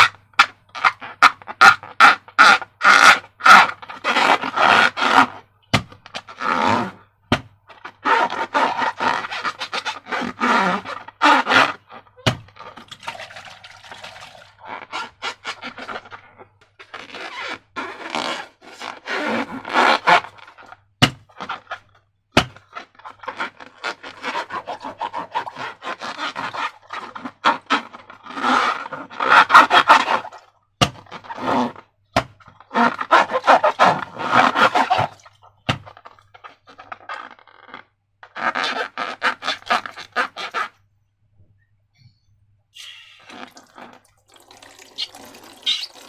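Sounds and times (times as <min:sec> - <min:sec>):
slime scraping and crinkling: 0:22.5 - 0:40.8.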